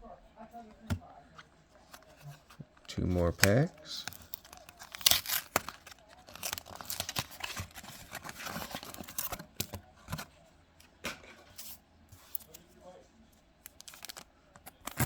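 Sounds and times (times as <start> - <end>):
wrapper tearing and crinkling: 3.9 - 9.4, 13.7 - 15.0.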